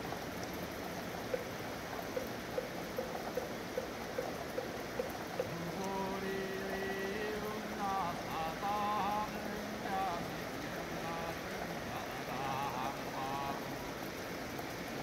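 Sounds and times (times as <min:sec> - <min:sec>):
steady rain: 0:00.0 - 0:15.0
person chanting: 0:05.5 - 0:13.9.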